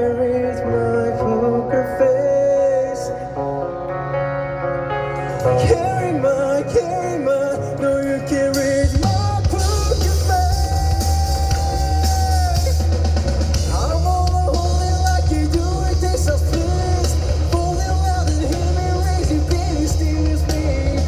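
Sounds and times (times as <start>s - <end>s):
person singing: 0.0s - 4.6s, 5.2s - 13.0s, 13.6s - 21.0s
live rock band: 0.0s - 21.0s.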